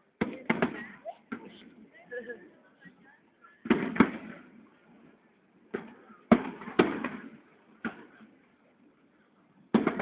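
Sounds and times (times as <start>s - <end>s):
fireworks bangs: 0.2s - 1.6s, 3.6s - 8.4s, 9.7s - 10.0s.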